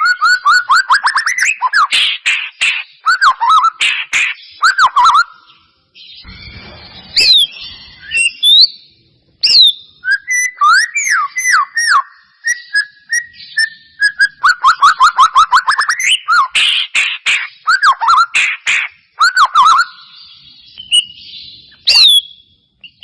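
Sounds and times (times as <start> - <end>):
songbird singing varied whistles: 0.0 - 5.6, 7.2 - 8.8, 9.4 - 23.0.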